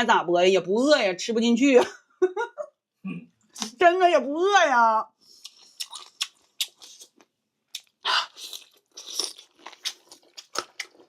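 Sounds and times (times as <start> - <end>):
person chewing crunchy food: 5.3 - 11.0.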